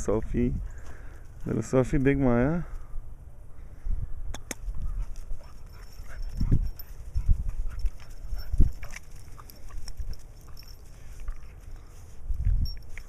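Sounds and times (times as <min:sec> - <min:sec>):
puppies scuffling: 0:05.0 - 0:13.0.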